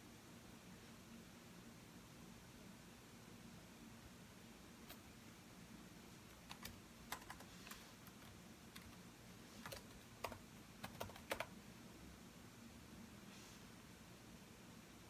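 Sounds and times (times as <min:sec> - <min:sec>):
computer keyboard typing: 0:06.3 - 0:09.0, 0:09.6 - 0:11.5.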